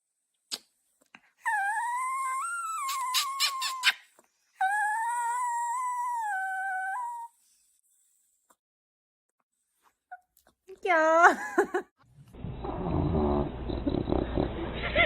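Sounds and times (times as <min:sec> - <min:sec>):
dog howling: 0:04.6 - 0:07.3.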